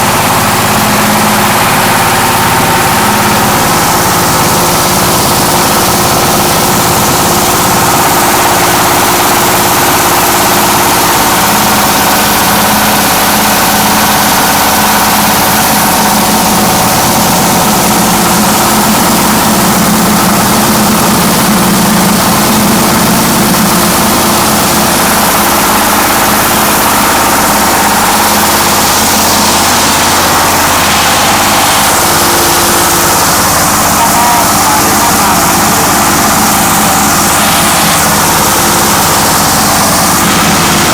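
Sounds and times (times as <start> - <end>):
diesel engine hum: 0.0 - 40.9
hammer mill hissing: 0.0 - 40.9.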